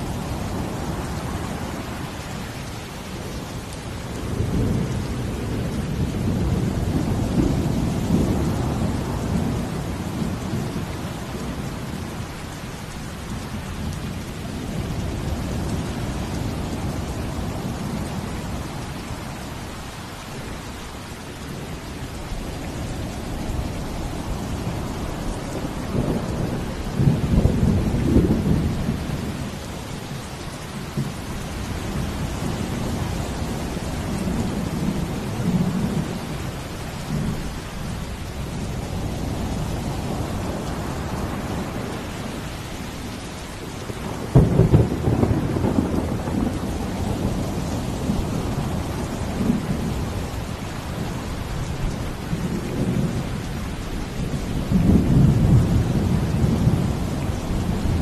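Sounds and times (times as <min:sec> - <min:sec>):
heavy rain: 0:00.0 - 0:58.0
rolling thunder: 0:23.5 - 0:29.5, 0:43.9 - 0:51.2, 0:54.2 - 0:58.0
loud thunderclap: 0:44.1 - 0:48.4.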